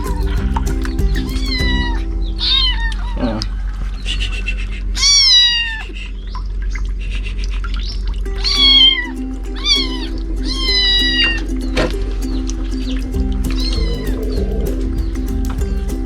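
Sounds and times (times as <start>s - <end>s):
background music: 0.0s - 3.0s, 8.9s - 16.0s
kitten meowing: 1.2s - 3.5s, 5.0s - 5.9s, 8.4s - 11.4s.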